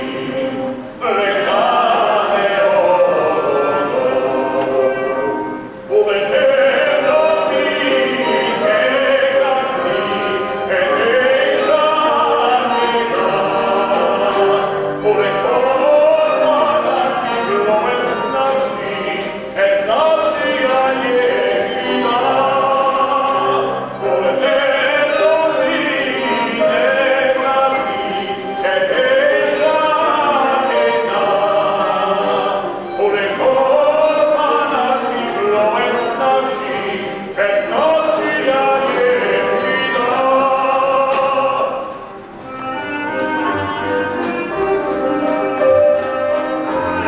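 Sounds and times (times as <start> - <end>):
group of people singing: 0.0 - 42.4.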